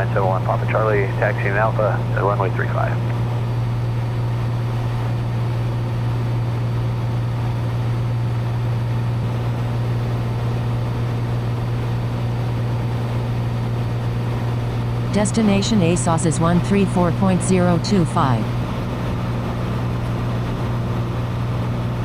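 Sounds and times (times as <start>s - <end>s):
airplane engine cabin drone: 0.0s - 22.0s.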